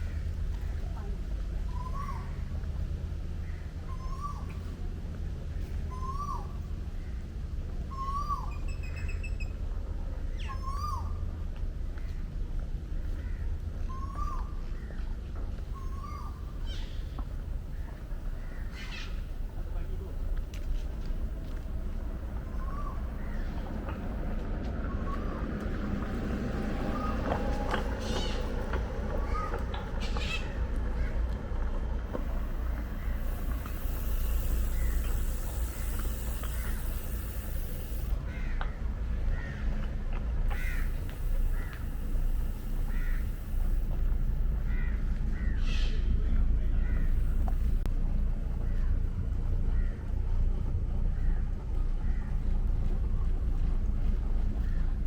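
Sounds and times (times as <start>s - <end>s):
bird calling: 3.5s - 4.6s, 13.9s - 15.0s, 15.6s - 31.2s, 32.1s - 39.8s, 40.5s - 47.9s
faint high bird chirps: 7.9s - 9.6s, 15.7s - 19.4s, 22.4s - 23.9s
steady low rumble: 11.2s - 55.0s.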